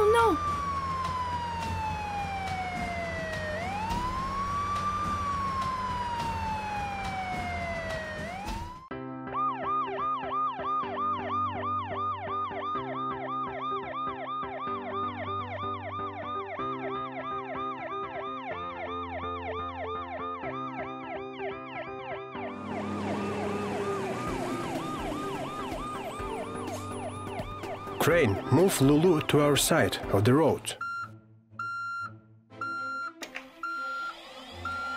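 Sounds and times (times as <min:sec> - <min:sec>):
police siren yelping: 0:00.0 - 0:29.2, 0:31.6 - 0:34.9
slow falling tone: 0:22.4 - 0:28.4.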